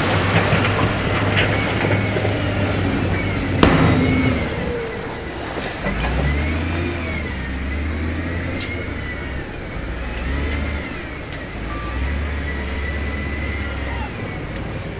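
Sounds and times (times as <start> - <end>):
diesel engine drone: 0.0 - 14.9
wavering machine whine: 0.0 - 14.9.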